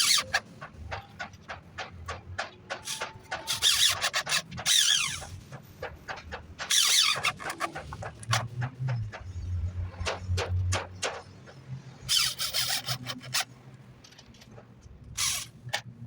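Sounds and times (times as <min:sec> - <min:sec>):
scraping strokes on wood: 0:00.0 - 0:09.4, 0:10.0 - 0:13.5
hand tools tapping wood: 0:00.1 - 0:09.3.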